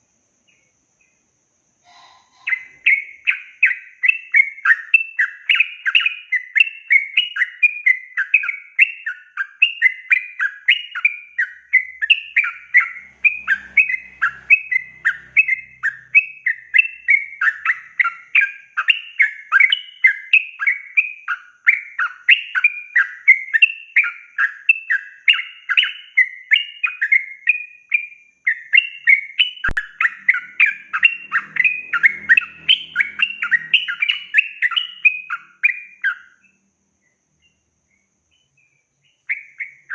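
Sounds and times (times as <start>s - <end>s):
bulbul singing chattering notes: 10.4s - 20.8s, 28.6s - 36.2s.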